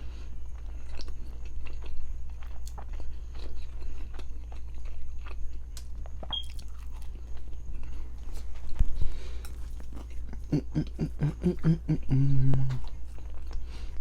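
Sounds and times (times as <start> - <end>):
person chewing: 0.2 - 14.0.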